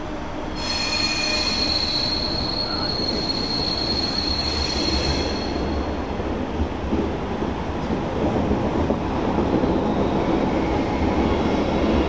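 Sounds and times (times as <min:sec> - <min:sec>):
low rumble of train cars: 0:00.0 - 0:12.0
high-pitched wheel squeal: 0:00.5 - 0:05.7.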